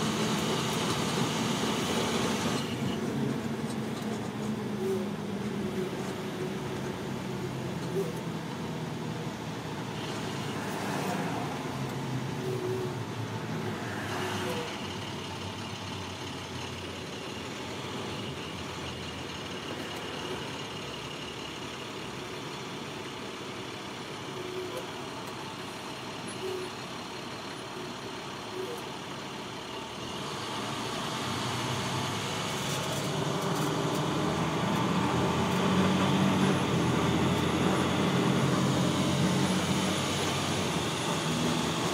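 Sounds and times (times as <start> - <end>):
vehicle engine and road noise: 0.0 - 41.9.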